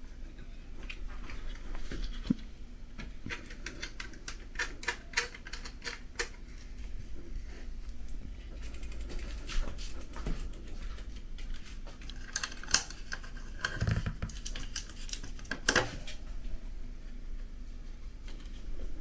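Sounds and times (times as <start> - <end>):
hand tools clicking and tapping: 3.0 - 6.4.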